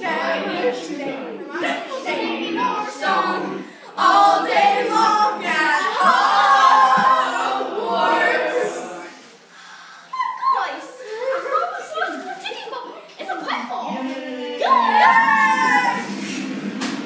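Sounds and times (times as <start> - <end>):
people singing without instruments: 0.0 - 9.3.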